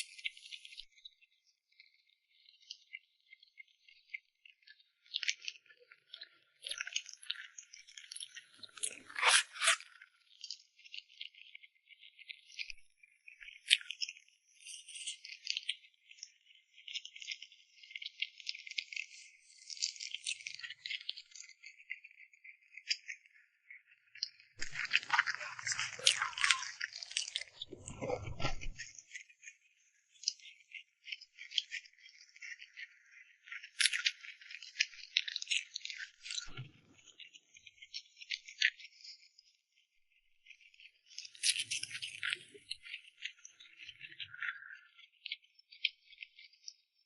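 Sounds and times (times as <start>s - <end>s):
close eating crackles and rustles: 24.6s - 29.2s, 41.1s - 44.8s.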